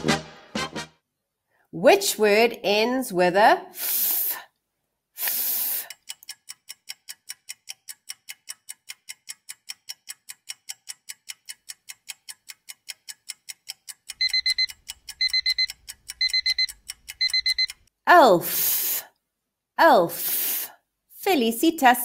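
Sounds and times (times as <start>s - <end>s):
clock ticking: 5.8s - 17.9s
alarm clock beeping: 14.1s - 17.9s.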